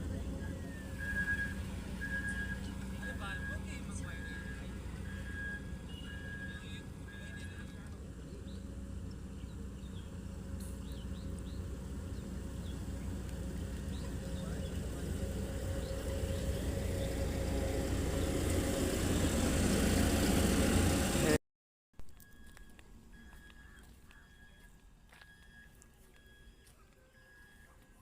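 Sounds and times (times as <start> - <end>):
vehicle engine running: 0.0 - 21.4.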